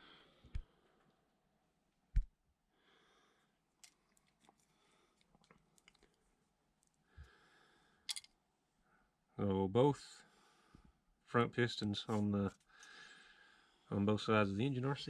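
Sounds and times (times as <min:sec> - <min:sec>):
tools clicking and tapping: 0:08.1 - 0:08.3.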